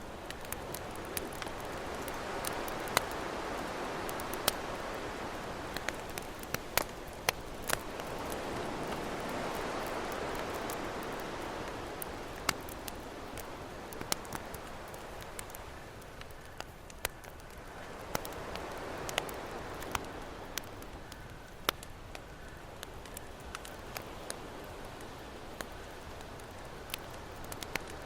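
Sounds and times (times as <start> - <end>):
ocean waves: 0.0 - 16.2, 17.5 - 21.0
campfire crackling and popping: 0.0 - 28.0.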